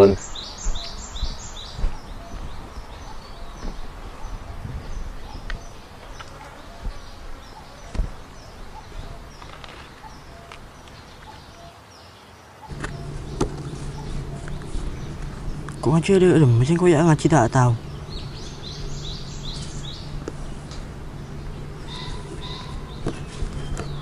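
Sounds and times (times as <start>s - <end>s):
small birds chirping: 0.0s - 24.0s
low steady hum: 12.7s - 24.0s.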